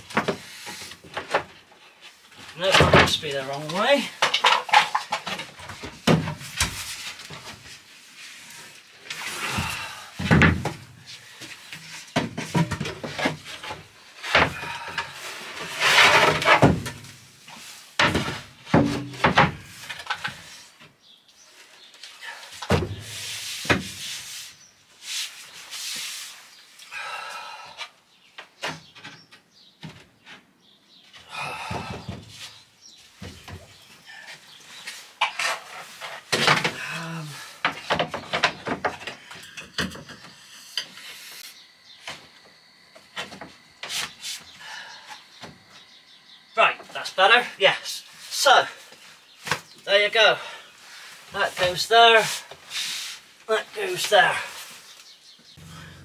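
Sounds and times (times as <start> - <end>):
wooden boards knocking and thumping: 0.0 - 1.6, 2.6 - 7.6, 9.5 - 11.0, 11.7 - 17.2, 18.0 - 20.4, 22.6 - 24.0, 31.4 - 32.4, 35.2 - 40.3
boards scraping together: 2.4 - 20.6.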